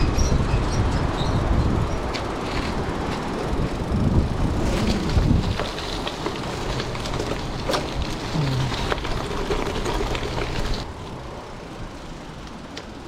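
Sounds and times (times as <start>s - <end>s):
wind buffeting microphone: 0.0s - 12.2s
bike rattling: 0.0s - 13.0s
bike tyres crunching on gravel: 1.2s - 11.2s.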